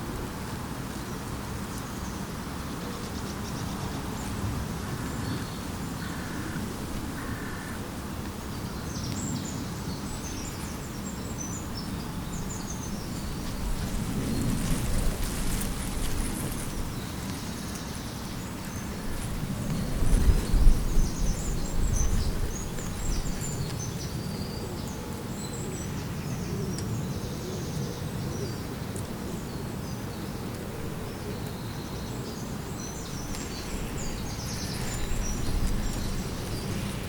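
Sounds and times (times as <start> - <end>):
wind rumbling on microphone: 0.0 - 37.0
small birds chirping: 8.4 - 37.0.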